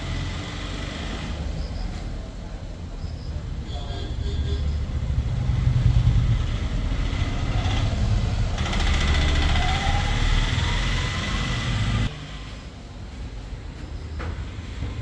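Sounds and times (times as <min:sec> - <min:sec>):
scooter engine running and revving: 0:05.0 - 0:12.2.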